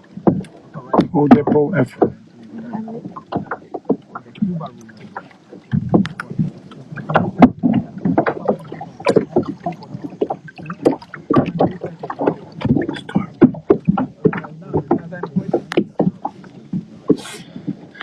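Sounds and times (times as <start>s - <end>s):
water splashing around kayaks: 0.0s - 18.0s.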